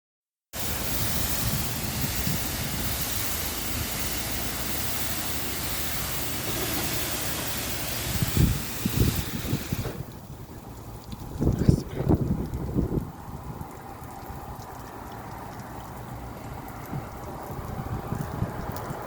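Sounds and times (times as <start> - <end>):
water jets spraying: 0.6 - 19.0
wind buffeting on microphone: 0.8 - 3.3, 8.0 - 14.6, 16.5 - 19.0.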